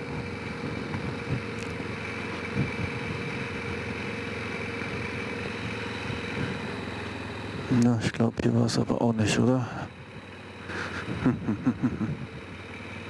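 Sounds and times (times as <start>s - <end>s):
quad engine running: 0.0s - 13.0s.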